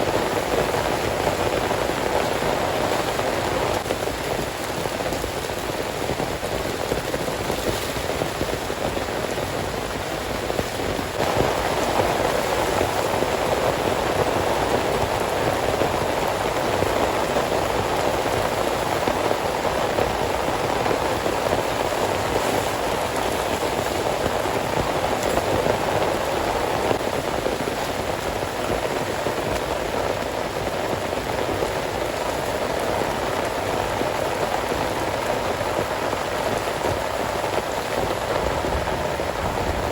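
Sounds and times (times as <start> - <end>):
heavy rain drumming: 0.0 - 39.9.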